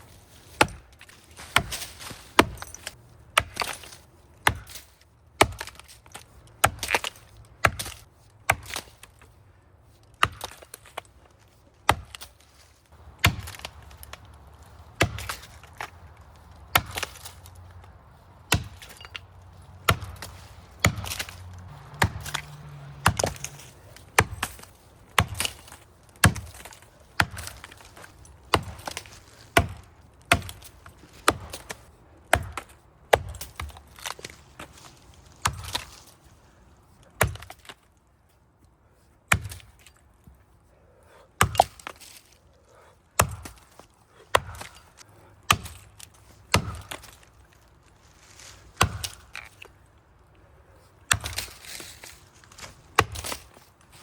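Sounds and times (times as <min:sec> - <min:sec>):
axe chopping into tree trunk: 0:00.5 - 0:09.2, 0:10.2 - 0:11.0, 0:11.8 - 0:12.4, 0:13.0 - 0:17.6, 0:18.4 - 0:36.1, 0:37.2 - 0:37.8, 0:39.3 - 0:39.9, 0:41.4 - 0:42.2, 0:43.2 - 0:44.8, 0:45.4 - 0:47.3, 0:48.7 - 0:49.6, 0:51.0 - 0:53.6.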